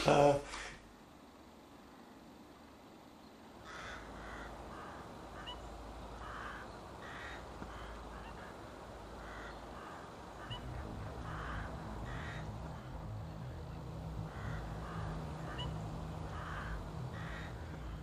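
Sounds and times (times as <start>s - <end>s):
outdoor background hiss: 0.0s - 18.0s
flock of birds calling: 3.6s - 13.0s, 13.6s - 18.0s.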